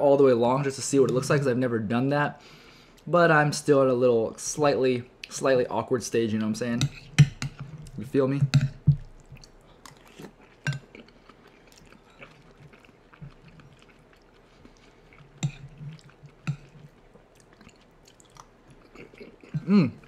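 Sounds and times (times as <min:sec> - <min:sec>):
chewing soft food: 0:09.0 - 0:20.0.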